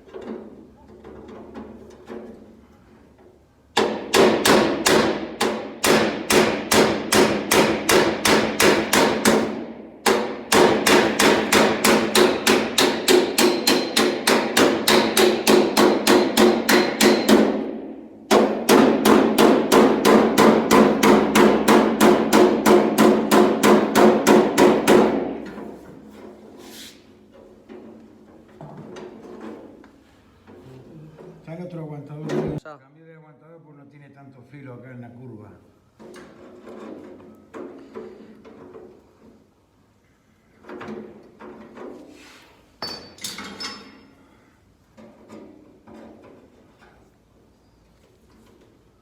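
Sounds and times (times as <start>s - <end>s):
hammer striking sheet steel: 3.8s - 25.8s.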